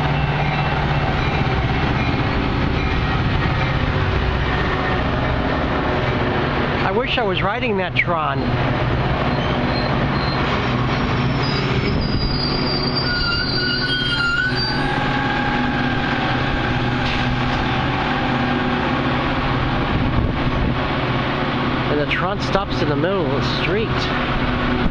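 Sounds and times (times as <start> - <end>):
train running by: 0.0 - 24.9
high wheel squeals: 9.3 - 10.5, 11.2 - 16.8.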